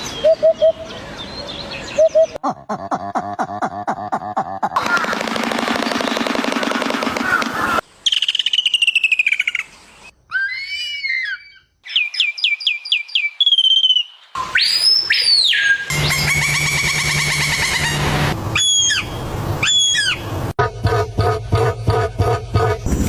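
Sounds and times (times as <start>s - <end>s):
bird chirps: 7.3s - 17.9s, 18.6s - 20.2s
bird whistles: 10.4s - 16.8s, 18.6s - 20.2s.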